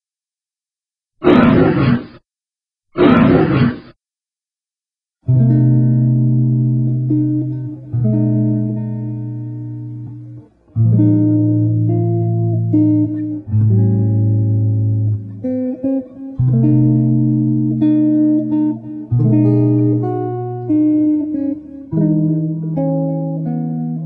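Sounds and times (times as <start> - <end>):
acoustic guitar chords: 5.2 - 24.0.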